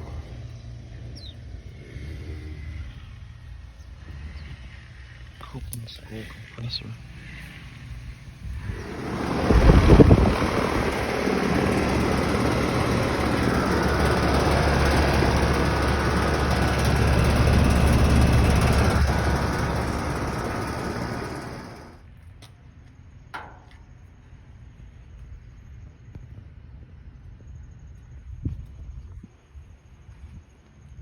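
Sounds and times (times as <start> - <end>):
air conditioner unit running: 8.3 - 22.0.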